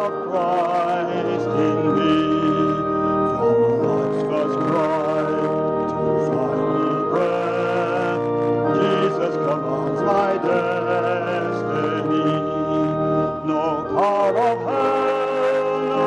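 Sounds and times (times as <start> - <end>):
church organ playing chords: 0.0 - 16.0
congregation singing: 0.0 - 16.0.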